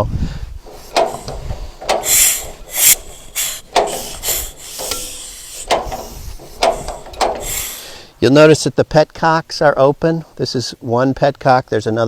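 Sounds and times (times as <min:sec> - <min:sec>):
engine hissing puffs: 0:00.0 - 0:08.7
rubbing: 0:00.7 - 0:08.1.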